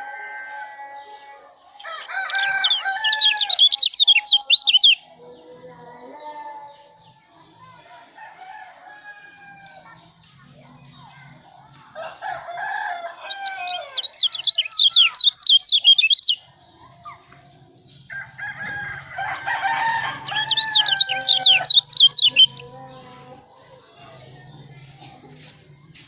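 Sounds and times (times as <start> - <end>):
rooster crowing: 0.0 - 3.8, 8.2 - 9.8, 12.0 - 14.8, 18.1 - 22.5
songbird singing high notes: 2.0 - 5.0, 13.3 - 16.5, 20.2 - 22.7.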